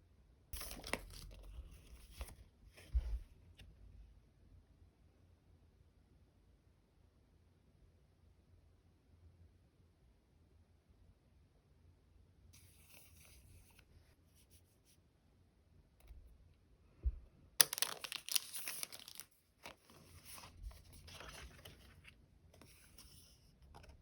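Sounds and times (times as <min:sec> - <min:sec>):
plastic packaging rustling: 0:17.6 - 0:22.1.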